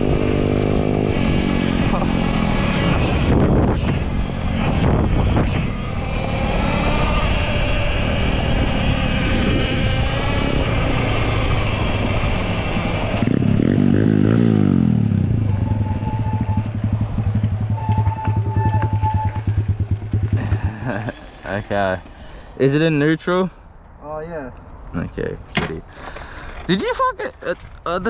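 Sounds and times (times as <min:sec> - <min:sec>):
dirtbike engine revving and idling: 0:00.0 - 0:22.0.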